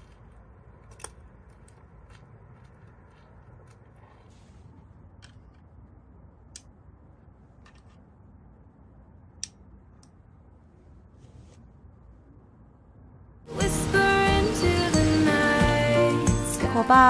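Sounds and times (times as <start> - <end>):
steady low rumble: 0.0 - 14.4.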